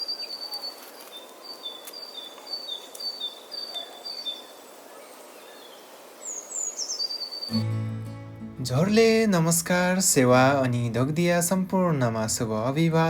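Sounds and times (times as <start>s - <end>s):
steady outdoor hiss: 0.0s - 13.0s
bird singing whistled notes: 5.4s - 7.9s.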